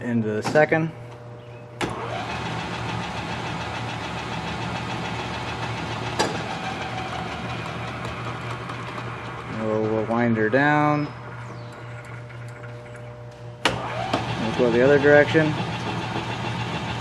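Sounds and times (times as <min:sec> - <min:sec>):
lathe running: 0:00.4 - 0:17.0
lathe switch clicking: 0:11.3 - 0:14.3.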